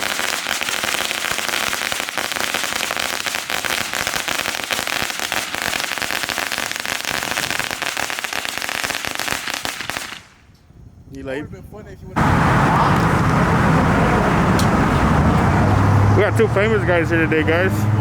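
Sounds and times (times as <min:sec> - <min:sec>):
fireworks crackling: 0:00.0 - 0:10.5, 0:12.2 - 0:16.0.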